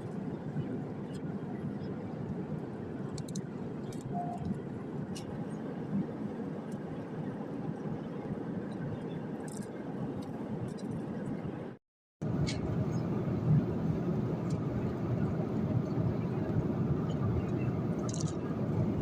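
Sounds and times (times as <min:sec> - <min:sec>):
airplane cabin rumble: 0:00.0 - 0:19.0
brief faint tone: 0:04.1 - 0:04.5.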